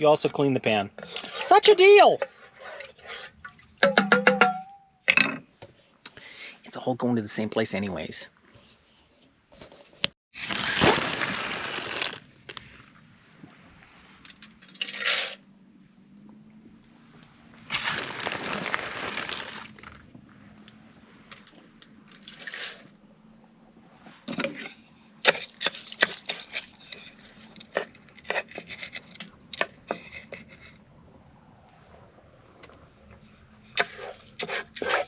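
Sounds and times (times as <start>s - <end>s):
pouring or rustling at a pan: 10.4s - 12.2s, 17.7s - 20.0s.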